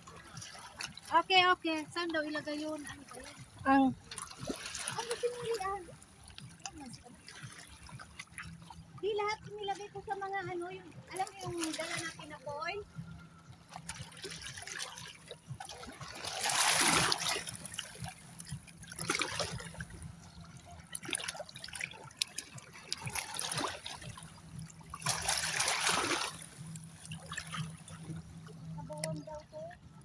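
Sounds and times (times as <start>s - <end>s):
seawater washing over rocks: 14.0s - 20.0s, 21.0s - 24.3s, 24.9s - 27.7s.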